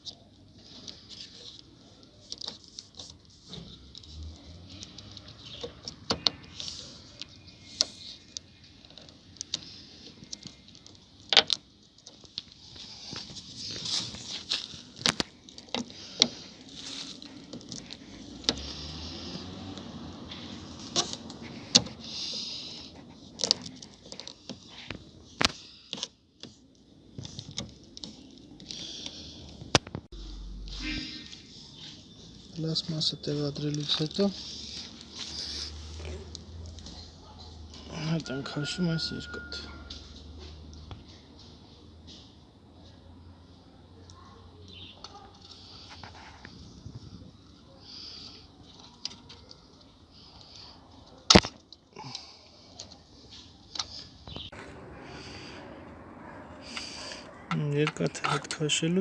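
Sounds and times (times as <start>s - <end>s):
plastic scraping and rubbing: 0.0s - 30.1s.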